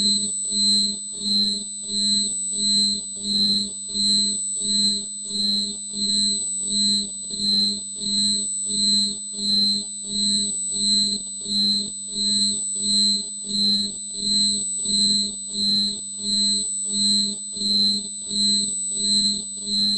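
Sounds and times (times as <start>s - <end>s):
shrill high-pitched electronic tone: 0.0s - 15.8s.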